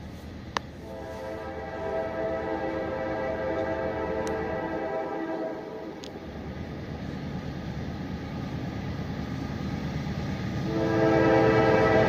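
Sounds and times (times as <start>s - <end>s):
diesel locomotive rumble: 0.0s - 12.0s
train horn blasts: 0.8s - 6.0s, 10.6s - 12.0s.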